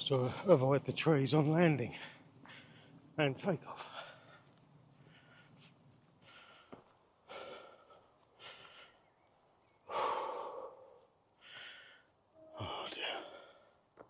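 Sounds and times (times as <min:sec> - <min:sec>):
man breathing hard: 0:02.0 - 0:03.1, 0:03.8 - 0:13.8.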